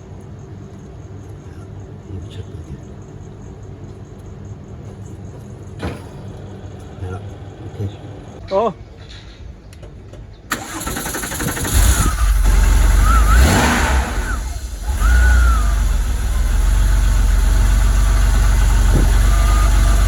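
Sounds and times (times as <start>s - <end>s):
car engine starting and running: 10.5s - 20.0s
starter motor cranking: 10.5s - 20.0s.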